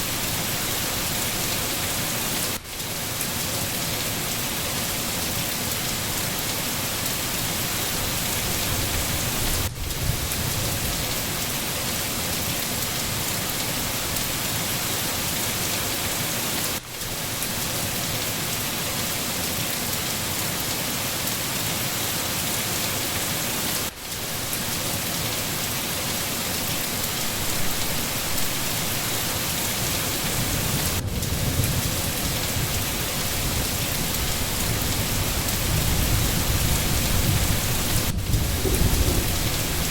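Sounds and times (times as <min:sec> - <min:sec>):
heavy rain on leaves: 0:00.0 - 0:39.9
distant thunder rumbles: 0:30.4 - 0:39.9.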